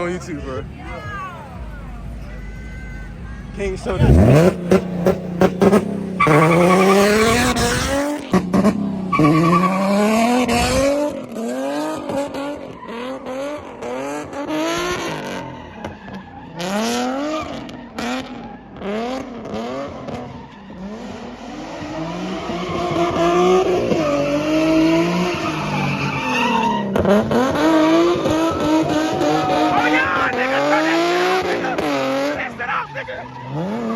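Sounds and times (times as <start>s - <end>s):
car engine revving: 0.0s - 33.9s
tires squealing and skidding: 0.0s - 33.9s.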